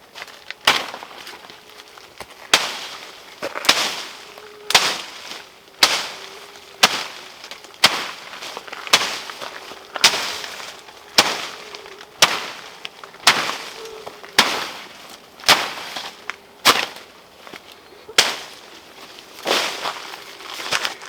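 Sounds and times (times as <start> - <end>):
short rustle: 0.3 - 21.0
sharp strikes: 2.5 - 17.1, 18.2 - 18.7.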